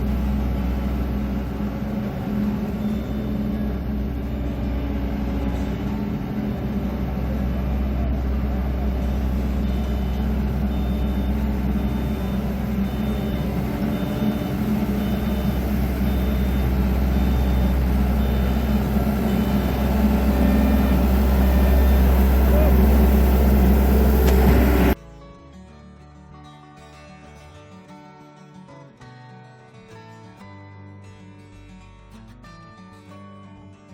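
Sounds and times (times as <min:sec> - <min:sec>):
diesel engine running: 0:00.0 - 0:25.0
reversing alarm beeping: 0:00.0 - 0:25.0.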